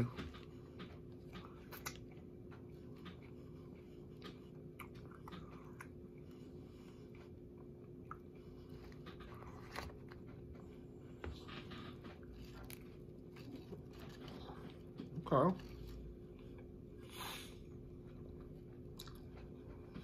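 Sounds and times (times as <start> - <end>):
person chewing: 0.2 - 10.6, 11.5 - 20.0.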